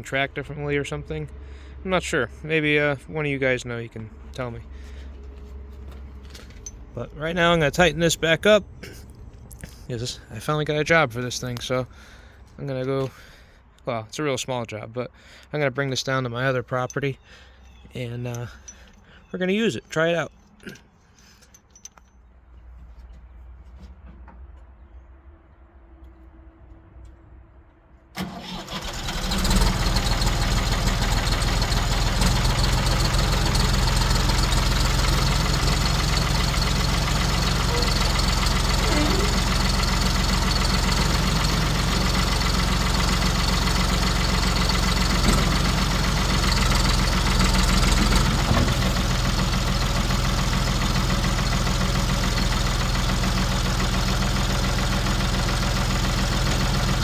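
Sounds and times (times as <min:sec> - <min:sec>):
diesel engine starting and idling: 0:00.0 - 0:13.7, 0:28.1 - 0:57.0.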